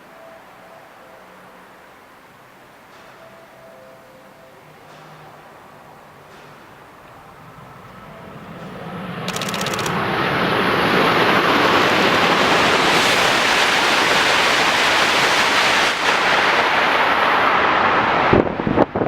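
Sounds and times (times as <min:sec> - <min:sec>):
high-speed train passing: 0:00.0 - 0:19.0.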